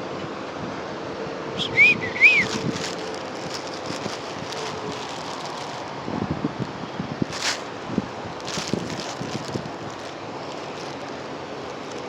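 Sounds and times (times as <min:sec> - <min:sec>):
wind noise on microphone: 0:01.6 - 0:12.0
rustling swish: 0:02.4 - 0:05.9, 0:07.3 - 0:07.8, 0:08.4 - 0:11.2.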